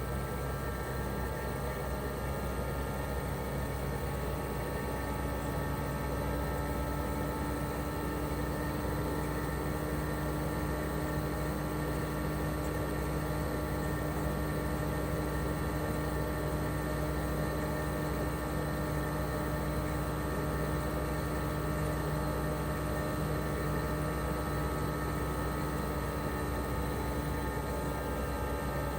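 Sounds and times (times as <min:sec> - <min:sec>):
compressor hum with fixed tones: 0:00.0 - 0:28.9.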